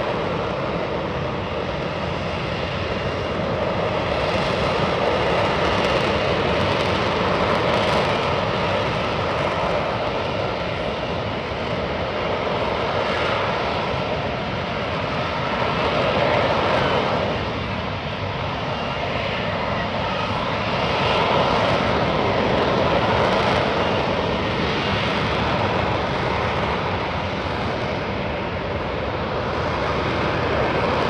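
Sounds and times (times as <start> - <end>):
aircraft engines rushing: 0.0 - 31.0.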